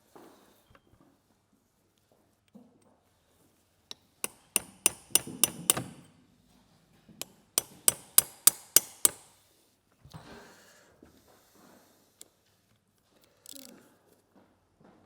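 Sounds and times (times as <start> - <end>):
hammer striking metal: 4.2 - 6.1, 7.2 - 9.3.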